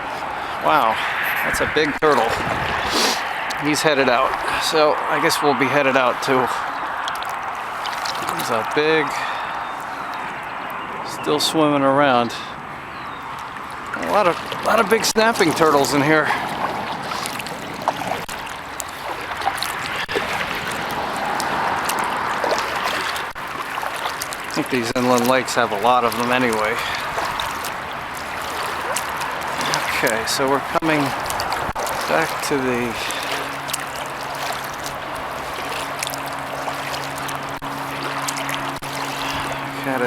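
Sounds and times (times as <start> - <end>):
kayak paddle strokes through water: 0.0 - 11.0, 12.2 - 40.0
water splashing and trickling: 0.0 - 40.0
steady low hum: 12.0 - 40.0.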